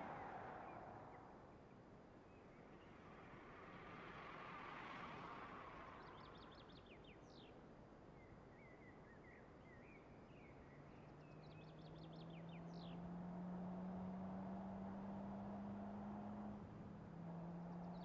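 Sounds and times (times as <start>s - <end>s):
car engine low hum: 0.0s - 1.3s, 11.9s - 18.0s.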